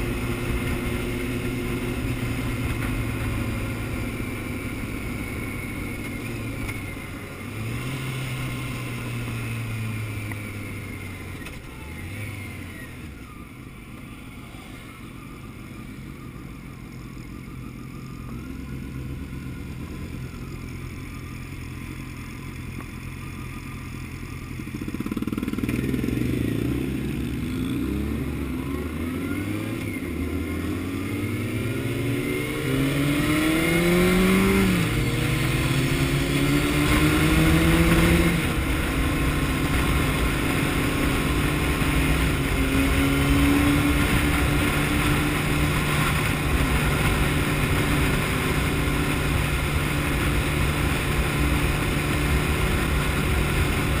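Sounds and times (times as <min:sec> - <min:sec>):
motorcycle engine revving: 0:00.0 - 0:54.0
rushing wind: 0:24.8 - 0:54.0.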